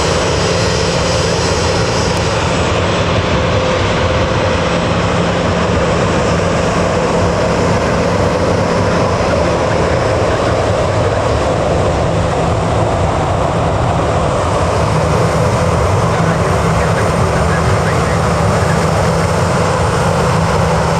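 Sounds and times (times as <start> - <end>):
jet engines running: 0.0 - 20.9.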